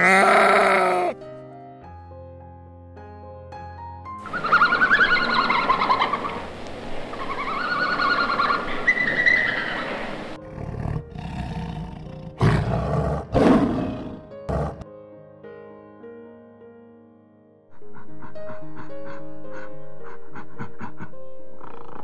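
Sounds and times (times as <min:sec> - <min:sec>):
farm animal harsh calls: 0:04.2 - 0:06.5, 0:07.1 - 0:10.4
animal breathy grunting: 0:10.4 - 0:14.8, 0:17.8 - 0:22.0.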